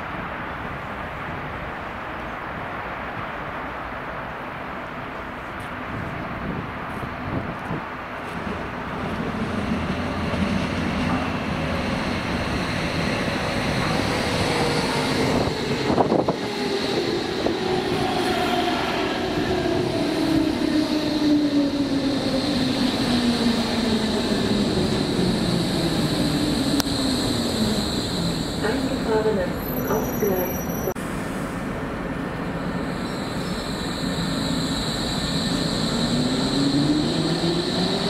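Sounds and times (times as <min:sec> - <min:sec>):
electric train braking: 0:24.4 - 0:31.7, 0:32.4 - 0:38.0.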